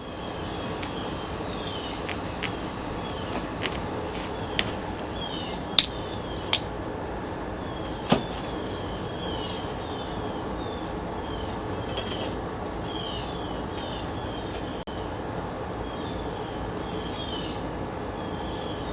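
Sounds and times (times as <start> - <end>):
steady background hiss: 0.0 - 18.9
metal parts clinking: 11.8 - 12.7.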